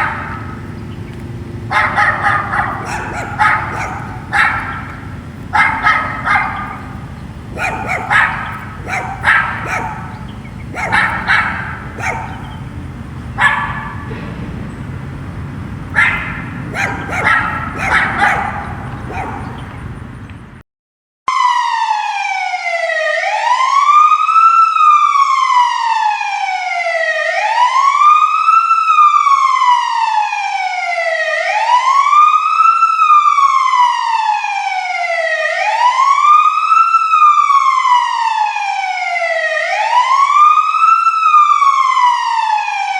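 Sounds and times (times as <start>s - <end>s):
dog barking: 0.0s - 20.0s
wailing siren: 0.0s - 20.2s, 21.3s - 42.9s.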